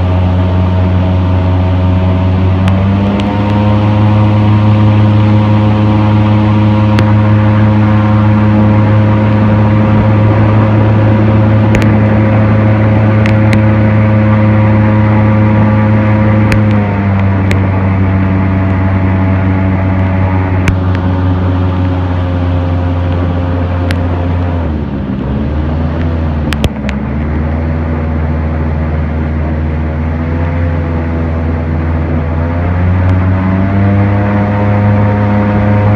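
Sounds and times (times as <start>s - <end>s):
airboat engine and propeller drone: 0.0s - 35.9s.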